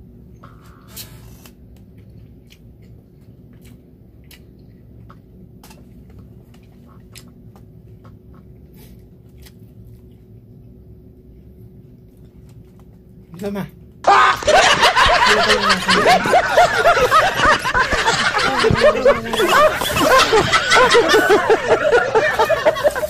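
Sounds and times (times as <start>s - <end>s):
faint steady hum: 0.0s - 23.0s
person chewing food: 1.7s - 13.2s.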